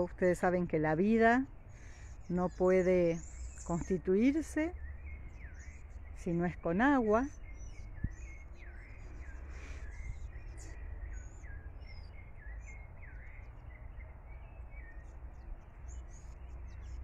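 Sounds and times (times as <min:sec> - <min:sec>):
birds chirping: 0:00.0 - 0:17.0
steady low rumble: 0:07.0 - 0:17.0.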